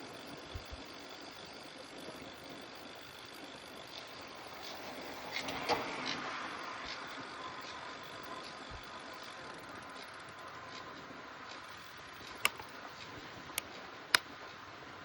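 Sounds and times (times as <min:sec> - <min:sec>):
road and wind noise: 0:00.0 - 0:15.0
sharp clicks: 0:11.6 - 0:12.8.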